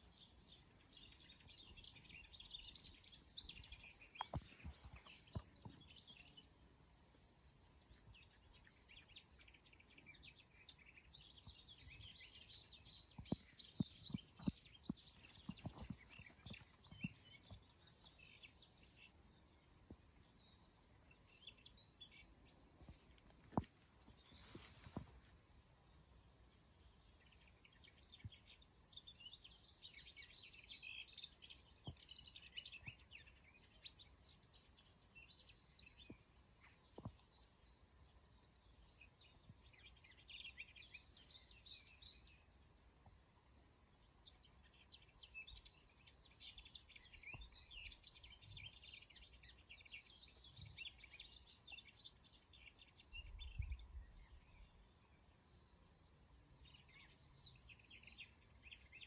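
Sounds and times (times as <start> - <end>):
small birds chirping: 0.0 - 25.3, 26.5 - 59.0
high-pitched bird trills: 19.1 - 21.0, 36.1 - 39.0, 42.8 - 44.4, 55.0 - 56.6.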